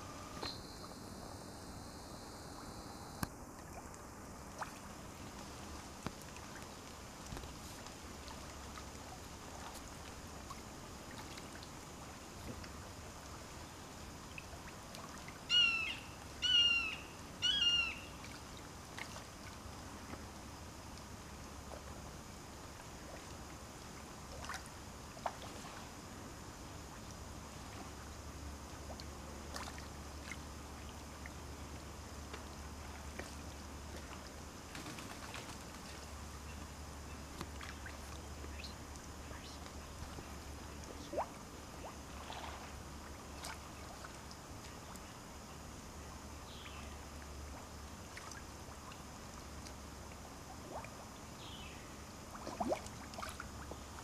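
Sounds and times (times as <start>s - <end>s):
bird calling: 15.5s - 18.2s.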